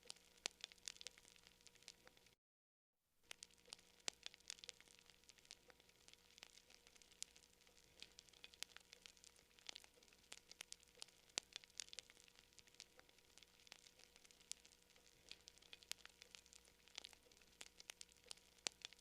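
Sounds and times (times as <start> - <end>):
campfire crackling: 0.0 - 2.4, 3.3 - 19.0.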